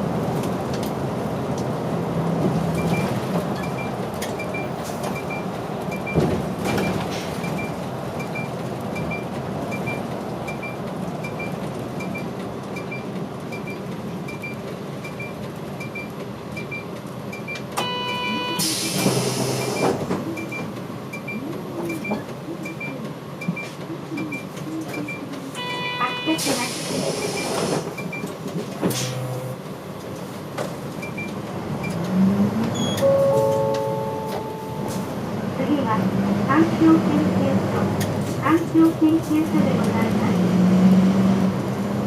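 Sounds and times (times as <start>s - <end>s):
bus engine idling: 0.0s - 32.0s, 32.7s - 42.0s
short buzzer tone: 25.6s - 26.4s.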